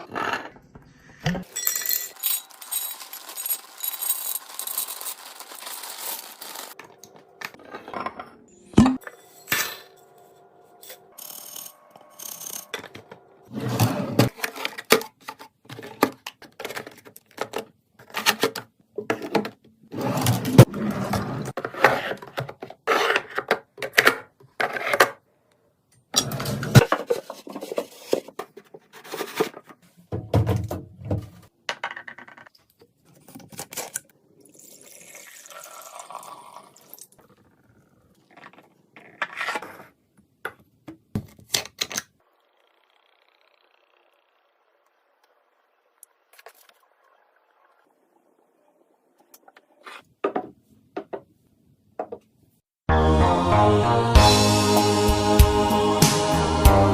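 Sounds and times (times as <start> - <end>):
jars and containers clinking: 1.4 - 10.2
packaging rustling: 2.5 - 6.8.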